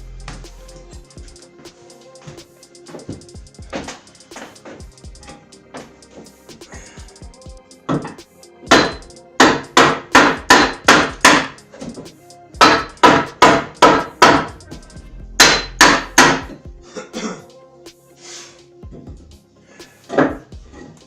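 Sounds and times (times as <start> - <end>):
hatchet striking wood: 7.9 - 12.0, 12.6 - 14.6, 15.4 - 16.6.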